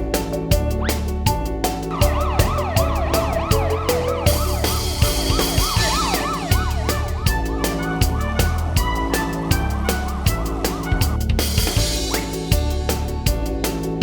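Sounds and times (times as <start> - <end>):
background music with beat: 0.0 - 14.0
cartoon siren wailing: 2.0 - 7.4.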